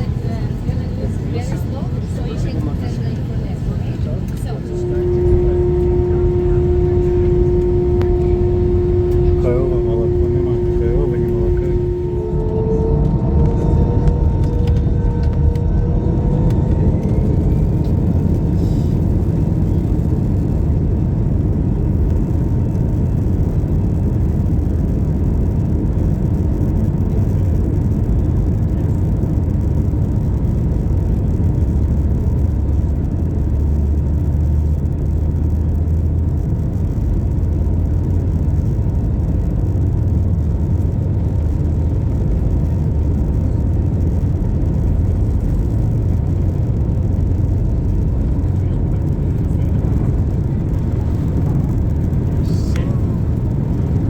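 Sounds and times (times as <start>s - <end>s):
airliner engine rumble: 0.0s - 54.0s
steady engine whine: 0.0s - 54.0s
rising whine: 4.2s - 25.5s, 36.4s - 54.0s.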